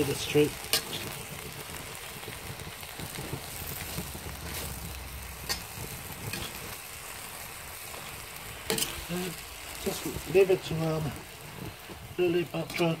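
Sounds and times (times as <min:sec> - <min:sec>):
stir-fry sizzling in a wok: 0:00.0 - 0:13.0
metal utensil clicking on pan: 0:00.6 - 0:01.0, 0:05.4 - 0:06.6, 0:08.7 - 0:09.1.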